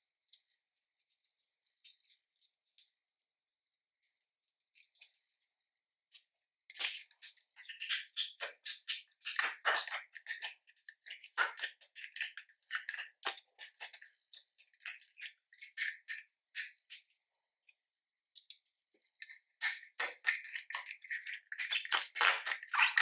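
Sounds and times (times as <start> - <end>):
slime squishing and crackling: 6.8 - 16.2, 19.6 - 23.0.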